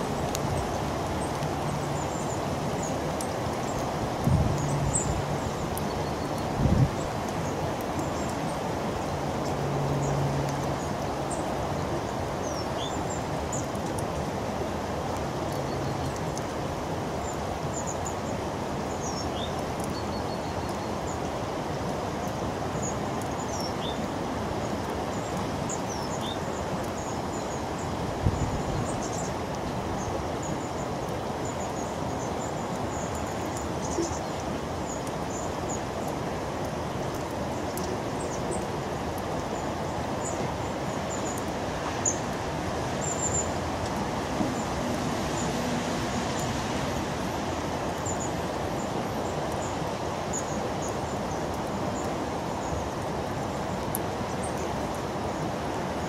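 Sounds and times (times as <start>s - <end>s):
small birds calling: 0.0s - 14.4s, 15.0s - 55.6s.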